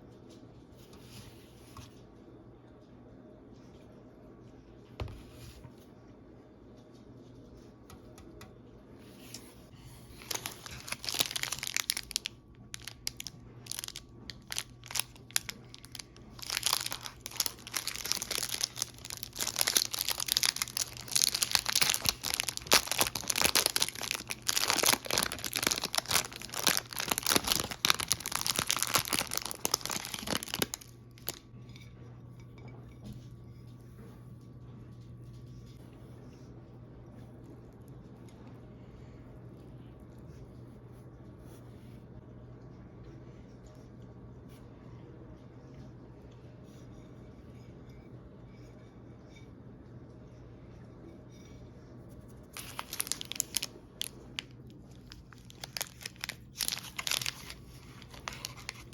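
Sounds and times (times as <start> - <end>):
snack packaging crinkling: 10.1 - 31.5, 52.4 - 58.9.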